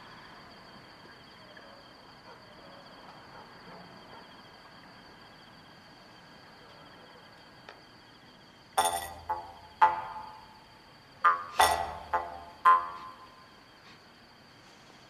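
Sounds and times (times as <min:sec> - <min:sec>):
insects chirring steadily: 0:00.0 - 0:15.0
soft insect chirps: 0:00.0 - 0:15.0.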